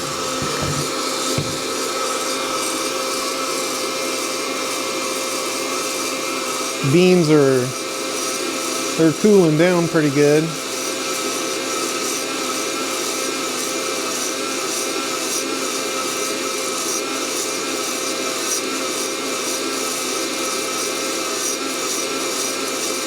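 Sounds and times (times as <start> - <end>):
coffee roaster fan whining: 0.0 - 23.0.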